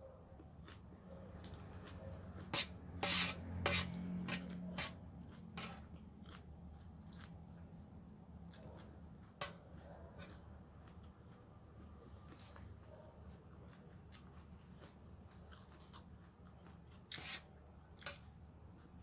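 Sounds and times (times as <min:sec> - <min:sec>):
person crunching raw vegetables: 0:05.2 - 0:07.7.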